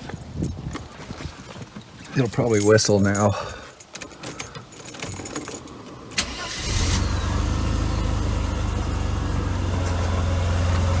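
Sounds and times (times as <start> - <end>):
car engine starting and idling: 6.1 - 11.0
exhaust leak: 6.2 - 7.5.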